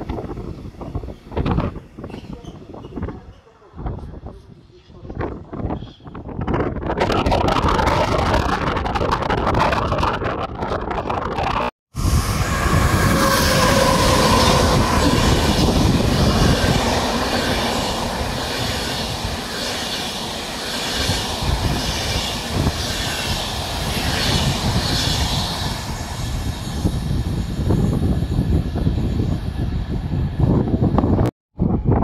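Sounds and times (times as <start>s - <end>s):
train wheels rumbling on rails: 0.0s - 31.3s.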